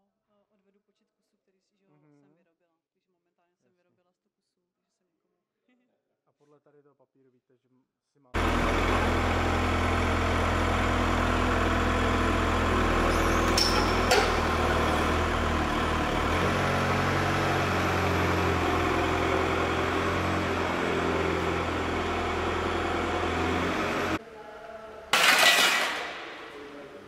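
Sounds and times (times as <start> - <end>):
factory machinery droning: 8.4 - 27.0.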